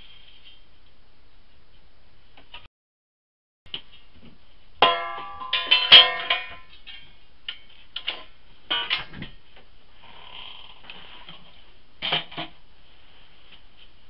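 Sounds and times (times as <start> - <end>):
ringing metal clanks: 4.8 - 7.1, 8.7 - 9.3.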